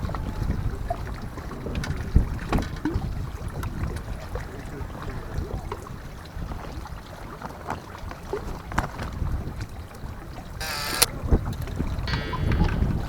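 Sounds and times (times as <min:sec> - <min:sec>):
harsh high-pitched sound: 0:10.6 - 0:11.1, 0:12.1 - 0:13.0.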